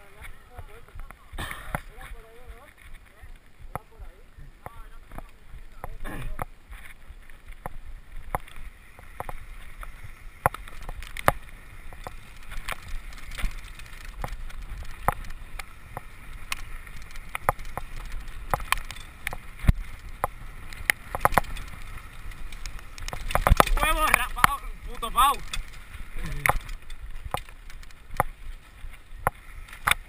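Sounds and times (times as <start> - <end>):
bike rolling on rough trail: 0.0 - 30.0
wind rumble on microphone: 0.0 - 30.0
bike rattling clicks and knocks: 4.6 - 30.0.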